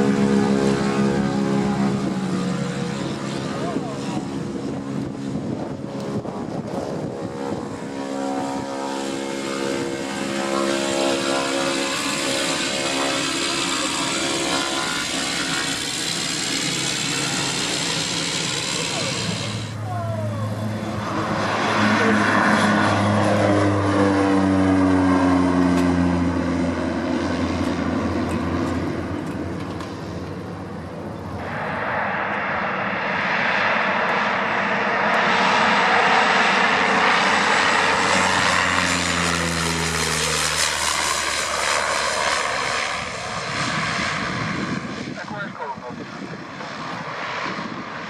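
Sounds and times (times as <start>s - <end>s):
turboprop plane passing: 0.0s - 48.0s.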